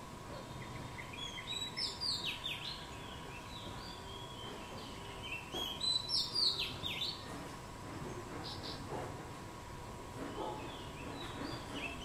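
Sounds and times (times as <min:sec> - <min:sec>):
small songbird singing: 0:00.3 - 0:07.3, 0:10.3 - 0:12.0.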